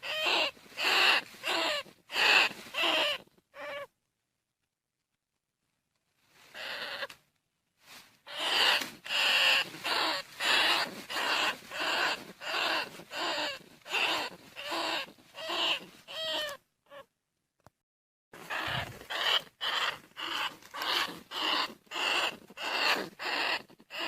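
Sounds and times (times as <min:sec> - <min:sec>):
rat raspy calls: 0:00.0 - 0:03.9, 0:06.5 - 0:07.2, 0:08.3 - 0:17.1, 0:18.4 - 0:24.0.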